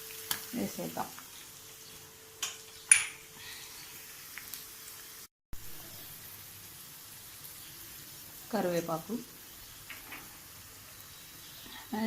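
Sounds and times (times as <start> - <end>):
metal kitchen utensils clinking: 2.4 - 3.3.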